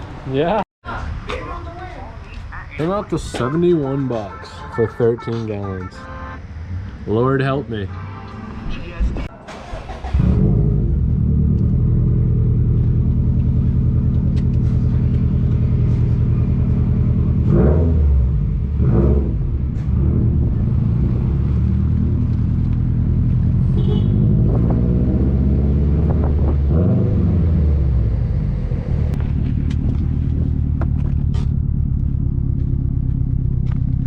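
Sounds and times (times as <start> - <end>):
engine revving: 6.3 - 32.2
car exhaust low rumble: 10.2 - 34.0.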